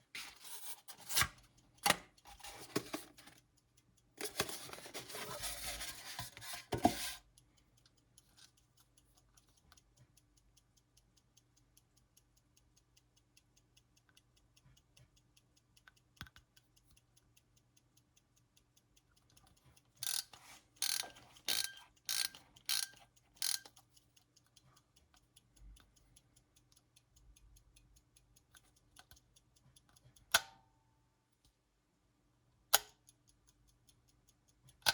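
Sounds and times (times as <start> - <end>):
clock ticking faintly: 1.4 - 31.6, 32.6 - 34.9
sharp clicks from clock knob: 7.8 - 30.7, 32.7 - 34.9
clock knob ratcheting: 20.0 - 23.9.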